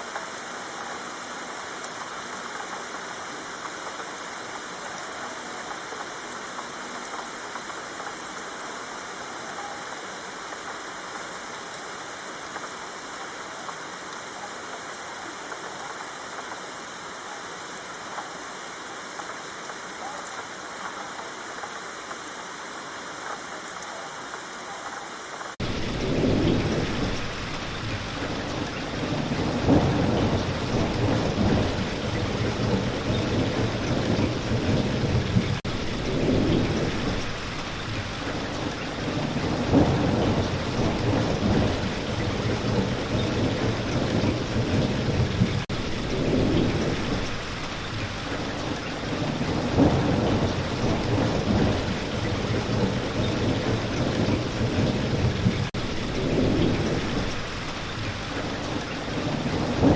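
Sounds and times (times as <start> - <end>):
rain on leaves and ground: 0.0 - 59.9
low rolling thunder: 25.6 - 59.9.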